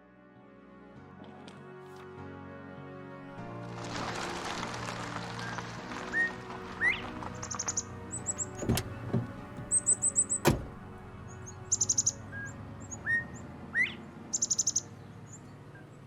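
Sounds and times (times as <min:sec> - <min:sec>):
soft music with low tone: 0:00.0 - 0:16.0
songbirds chirping: 0:04.2 - 0:16.0.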